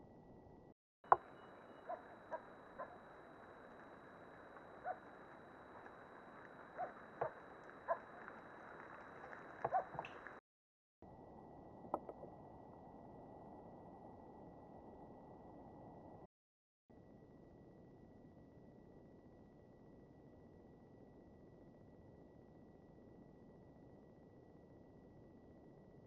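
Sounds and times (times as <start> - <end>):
bird giving sharp calls: 1.1 - 3.0
steady hiss: 1.1 - 10.4
thin high electronic whine: 1.1 - 10.4.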